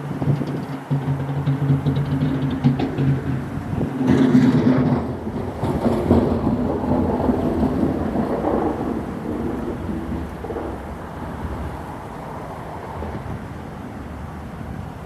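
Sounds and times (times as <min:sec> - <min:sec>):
continuous rushing noise: 0:00.0 - 0:15.0.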